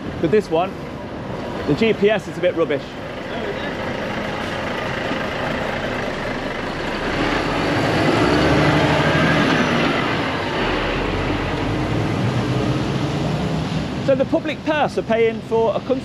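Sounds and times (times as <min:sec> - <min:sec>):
train rumbling past: 0:02.8 - 0:14.0.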